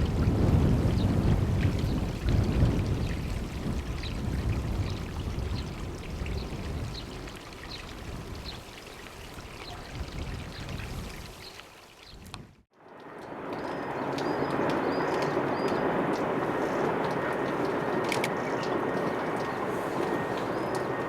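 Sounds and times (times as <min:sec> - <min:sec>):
faint regular clicks: 0:17.0 - 0:20.9.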